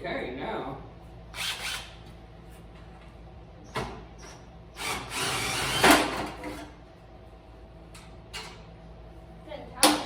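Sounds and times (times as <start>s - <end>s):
cordless screw gun running: 4.8s - 6.0s.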